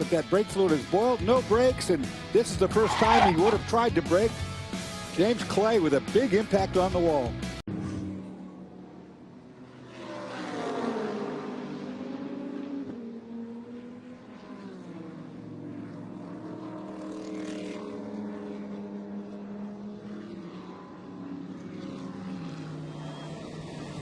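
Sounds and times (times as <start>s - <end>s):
race car engines droning: 0.0s - 24.0s
race car passing by: 2.6s - 3.7s, 7.7s - 24.0s.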